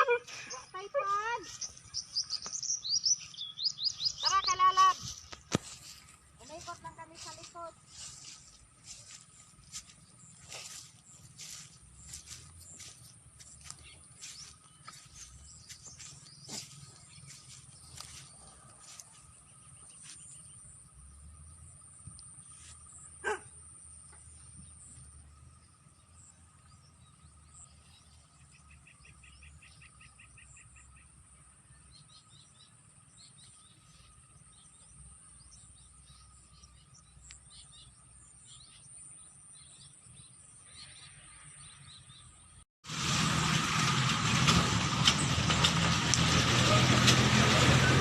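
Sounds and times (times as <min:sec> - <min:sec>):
bird chirps: 0:00.0 - 0:42.6
bird rapid trill: 0:01.4 - 0:05.3.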